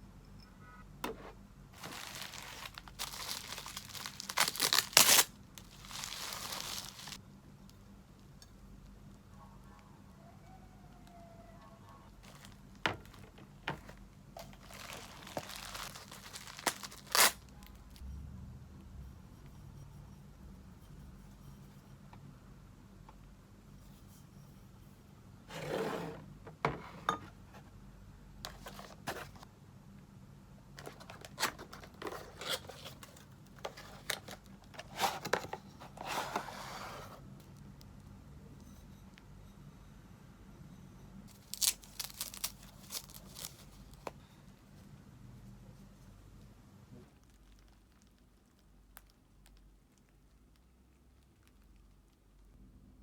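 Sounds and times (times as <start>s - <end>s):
faint room hum: 0.0s - 53.0s
packaging crinkling: 1.8s - 7.2s, 12.1s - 18.0s, 41.3s - 44.1s.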